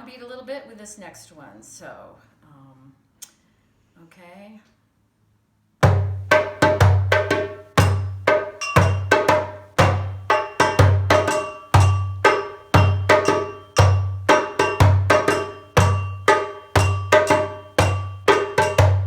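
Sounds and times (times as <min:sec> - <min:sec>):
hand drum rhythm: 0:05.8 - 0:19.0.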